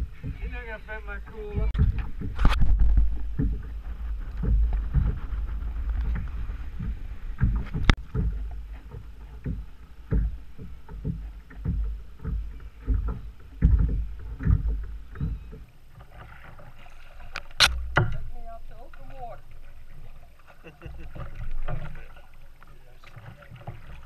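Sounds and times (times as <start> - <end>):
low rumble: 0.0 - 15.5
knocks and thumps on kayak: 0.0 - 24.0.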